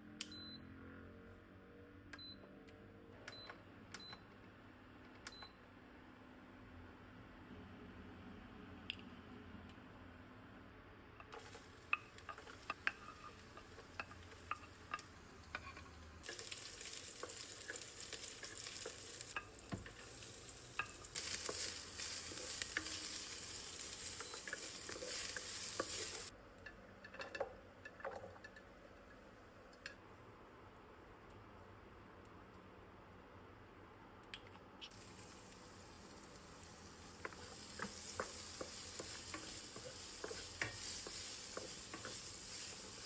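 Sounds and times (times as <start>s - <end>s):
vegetables sizzling in a pan: 11.4s - 26.3s, 34.9s - 43.0s.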